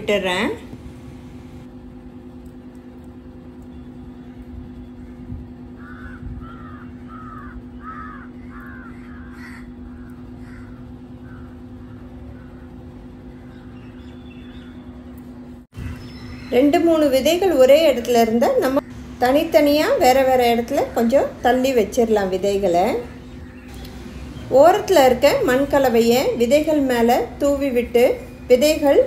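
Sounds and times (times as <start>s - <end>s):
steady low hum: 0.0s - 29.0s
bird calling: 5.8s - 15.0s.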